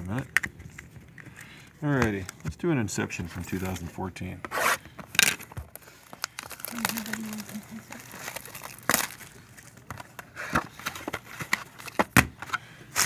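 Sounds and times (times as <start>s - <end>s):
cardboard box handling clicks and scrapes: 8.0s - 13.0s.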